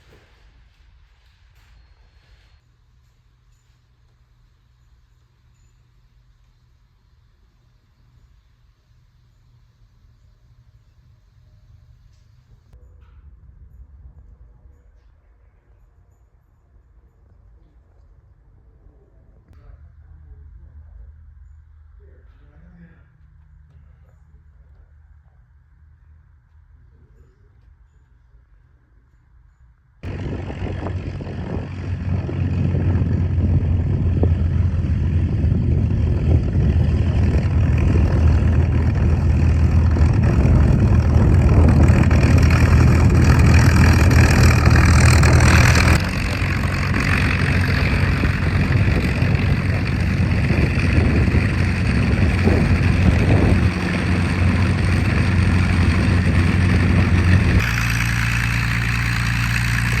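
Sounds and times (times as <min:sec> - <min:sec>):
aircraft piston engine droning: 0:30.0 - 1:00.0.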